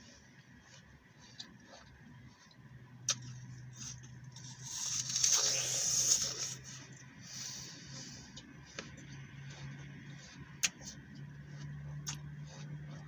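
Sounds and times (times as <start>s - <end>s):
apple crunching: 0.0s - 7.2s, 8.2s - 13.0s
apple being bitten: 0.8s - 6.8s, 10.1s - 13.0s.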